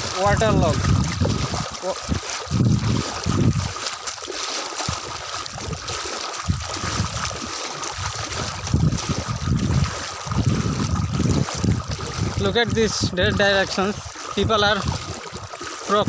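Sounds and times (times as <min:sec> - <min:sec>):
low rumbles: 0:00.0 - 0:03.7, 0:08.0 - 0:15.2
footsteps wading through water: 0:00.0 - 0:16.0
water splashing and sloshing: 0:00.0 - 0:16.0.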